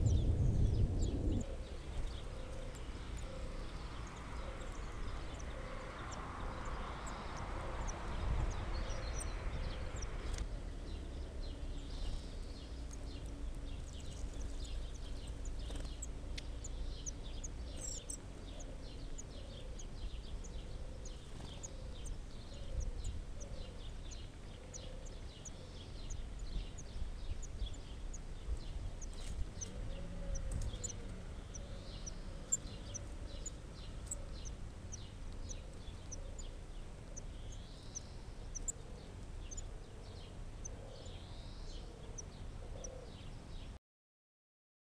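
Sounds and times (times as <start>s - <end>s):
low rumble: 0.0s - 5.5s.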